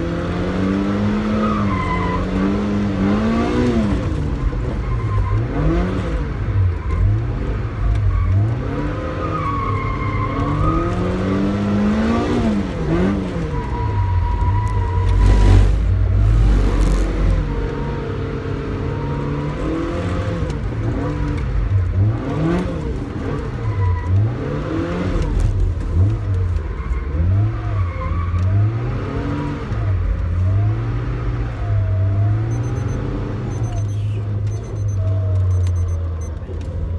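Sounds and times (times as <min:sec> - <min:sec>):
car engine revving: 0:00.0 - 0:36.8.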